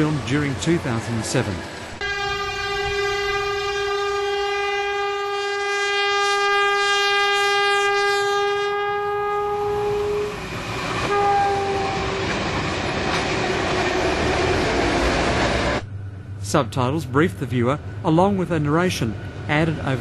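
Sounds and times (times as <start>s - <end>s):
train wheels rumbling on rail: 0.0s - 5.2s, 9.0s - 20.0s
locomotive horn blasts: 2.0s - 10.4s, 11.1s - 12.4s.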